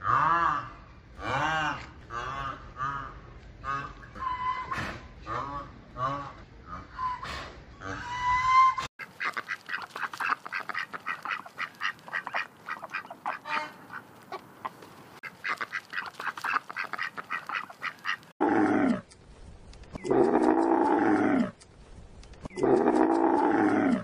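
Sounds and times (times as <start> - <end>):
ducks quacking: 9.0 - 18.3.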